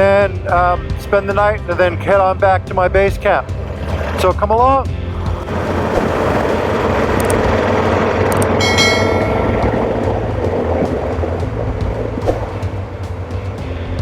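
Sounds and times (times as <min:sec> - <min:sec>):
motorcycle engine droning: 0:00.0 - 0:14.0
road and wind noise: 0:00.0 - 0:14.0
high metallic ringing: 0:08.5 - 0:10.3.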